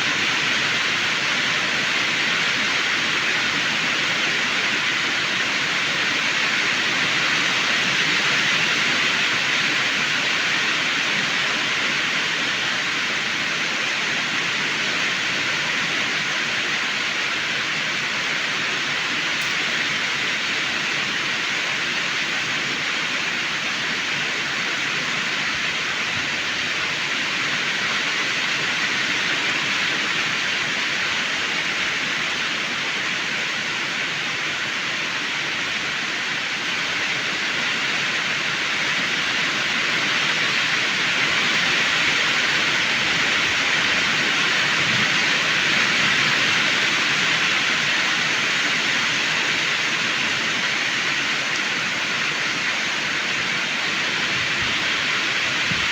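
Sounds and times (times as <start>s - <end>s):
heavy rain: 0.0s - 55.9s.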